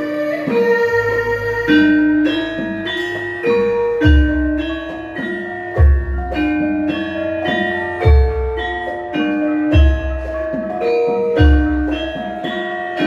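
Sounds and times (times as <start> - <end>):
metallophones playing melody: 0.0 - 13.0.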